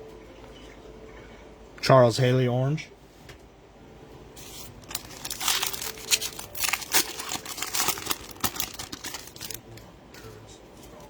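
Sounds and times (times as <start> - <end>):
foil wrapper tearing and crinkling: 4.6 - 9.8.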